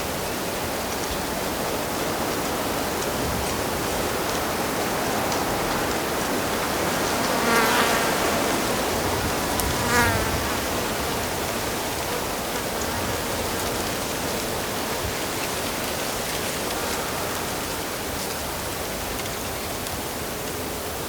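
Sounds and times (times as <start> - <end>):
insect buzzing past: 6.9 - 14.4.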